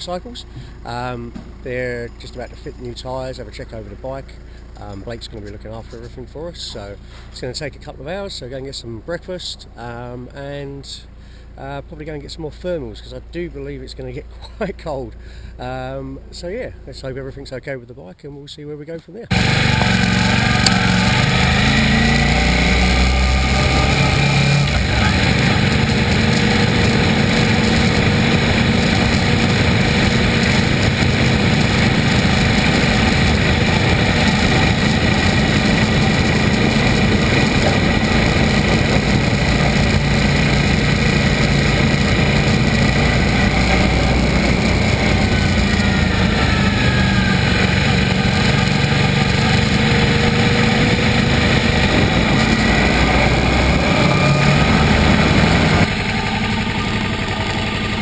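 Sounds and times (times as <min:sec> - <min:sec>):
motorcycle engine running: 0:00.0 - 0:09.6, 0:19.3 - 0:58.0
road and wind noise: 0:19.3 - 0:58.0.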